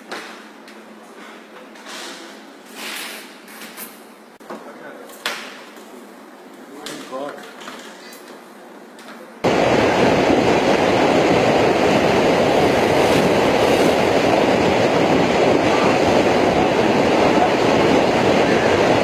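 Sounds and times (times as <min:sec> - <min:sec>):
floodwater rushing roar: 0:09.4 - 0:19.0.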